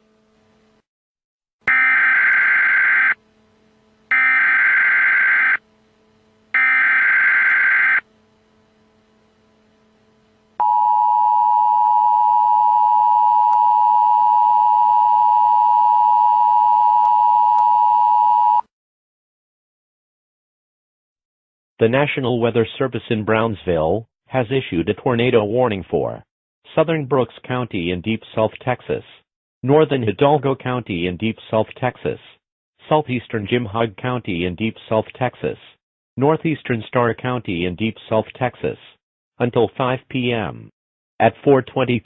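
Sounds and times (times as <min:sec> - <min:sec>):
steady attention tone: 0:01.7 - 0:18.0.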